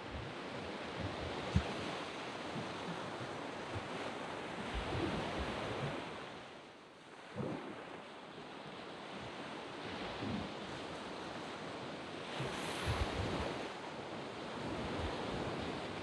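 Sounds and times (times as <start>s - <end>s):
wind thumps on microphone: 0.0s - 6.1s, 12.4s - 13.6s
waves breaking on sand beach: 0.0s - 16.0s.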